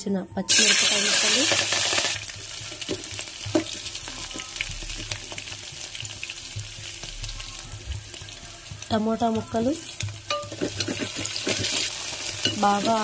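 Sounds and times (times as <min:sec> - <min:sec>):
chillies sizzling in hot oil: 0:00.5 - 0:13.0
metal spoon stirring: 0:07.5 - 0:13.0.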